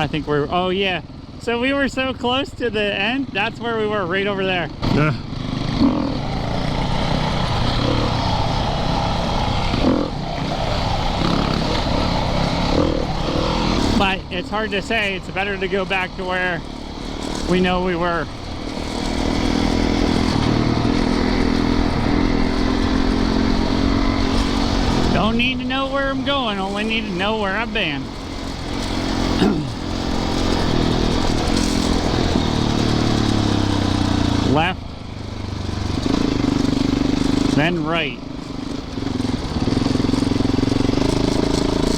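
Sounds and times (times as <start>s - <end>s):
dirt bike engine running: 0.0s - 41.9s
wind and ground noise: 0.0s - 41.9s.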